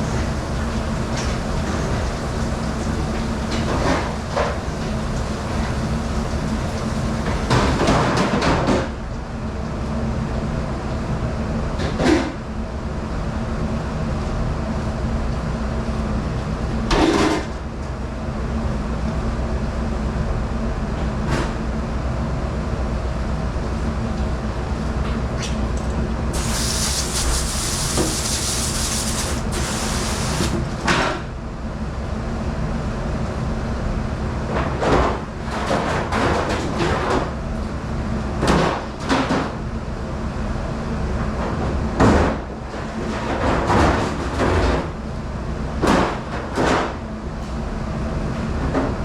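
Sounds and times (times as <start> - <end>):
hiss: 0.0 - 7.8, 26.3 - 30.9
dishwashing machine hum: 0.0 - 10.1, 23.3 - 32.2.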